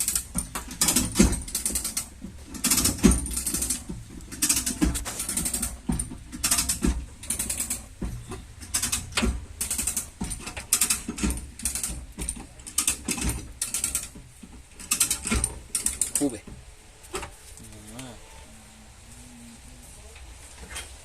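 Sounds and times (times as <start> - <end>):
hand ratchet clicking: 0.0 - 7.9, 8.6 - 16.4.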